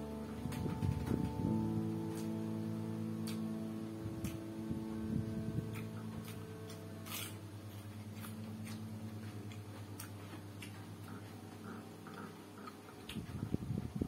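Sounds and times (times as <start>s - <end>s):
low hum: 0.0s - 14.0s
cucumber crunching: 4.2s - 13.6s.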